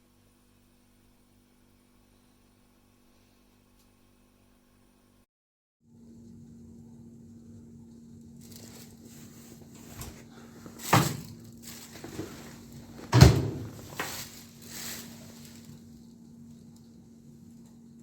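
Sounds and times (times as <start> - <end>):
steady low hum: 5.9 - 18.0.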